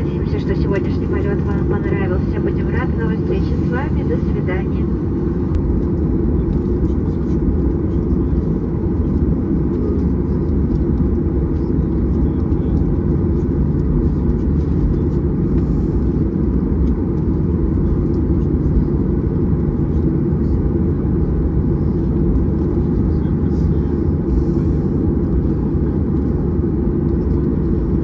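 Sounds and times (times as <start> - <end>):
faint steady tones: 0.0 - 5.6
airplane cabin low rumble: 0.0 - 28.0.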